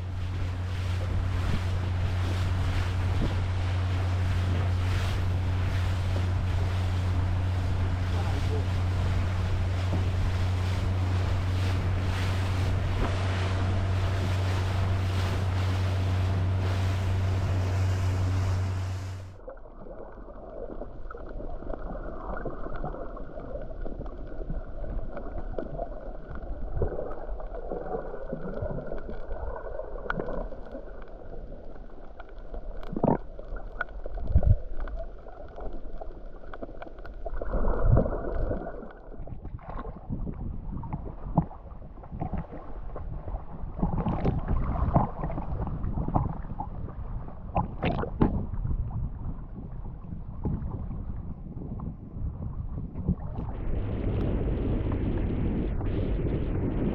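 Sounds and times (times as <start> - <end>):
wind noise: 0.0 - 19.3, 39.2 - 56.9
boat engine drone: 0.0 - 19.5, 53.4 - 56.9
water sloshing: 0.0 - 24.1.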